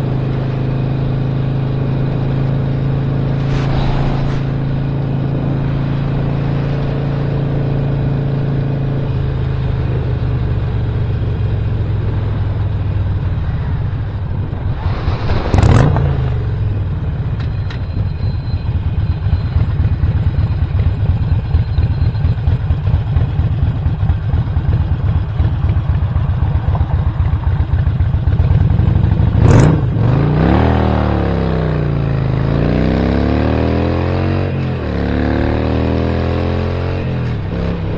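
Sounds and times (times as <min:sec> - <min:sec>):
motorcycle engine running: 0:04.5 - 0:37.9.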